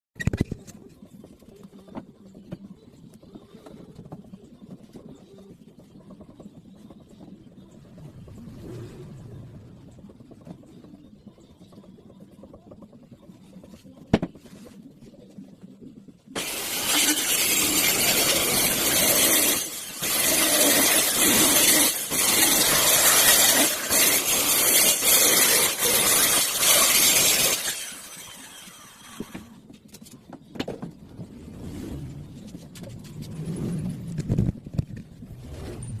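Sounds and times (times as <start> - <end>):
loud power tool starting: 16.4 - 29.4.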